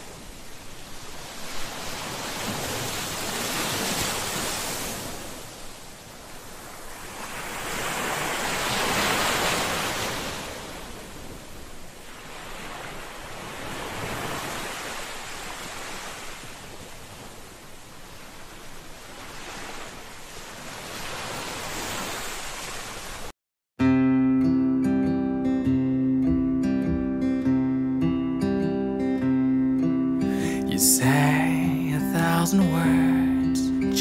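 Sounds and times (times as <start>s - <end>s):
sea waves washing onto shore: 0.0s - 23.3s, 30.3s - 34.0s.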